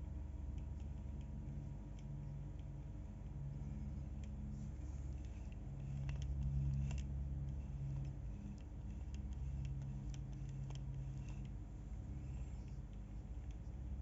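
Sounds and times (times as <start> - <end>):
reel clicks and knocks: 5.1 - 11.6.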